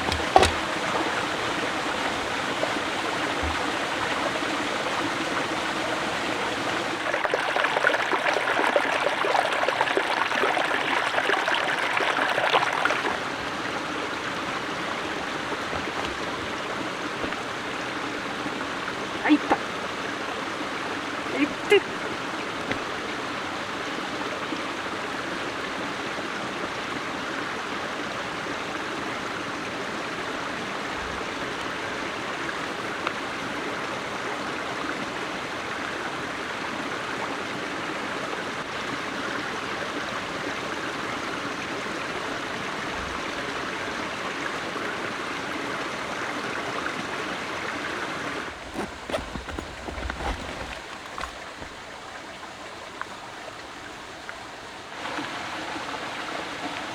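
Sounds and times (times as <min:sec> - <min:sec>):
low knocks: 0:00.0 - 0:04.6
stream flowing water: 0:00.0 - 0:56.9.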